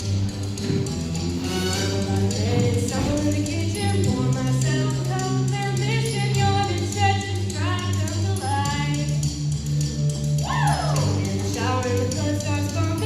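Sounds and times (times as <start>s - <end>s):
instrumental backing with bass notes: 0.0s - 13.0s.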